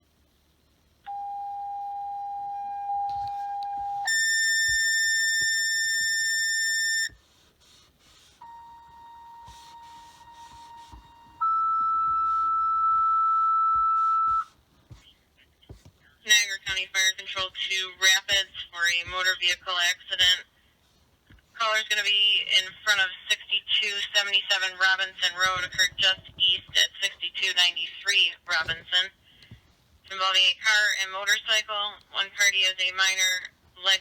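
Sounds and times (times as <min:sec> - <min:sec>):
two-tone paging tones over radio: 0:08.4 - 0:14.5.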